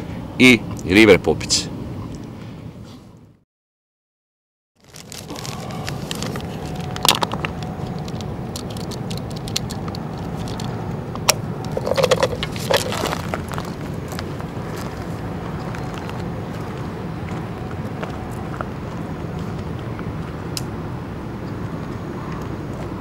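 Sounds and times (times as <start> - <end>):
fishing tackle clicking and rustling: 4.8 - 16.3
low outdoor rumble: 4.8 - 23.0.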